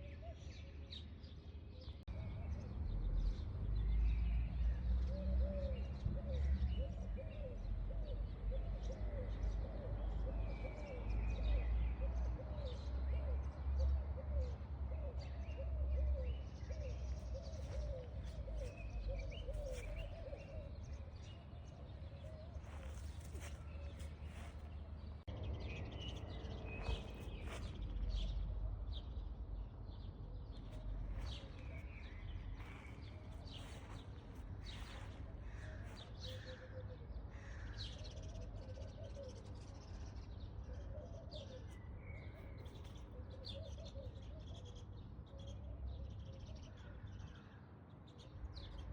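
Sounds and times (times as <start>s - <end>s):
birds chirping: 14.4s - 38.4s.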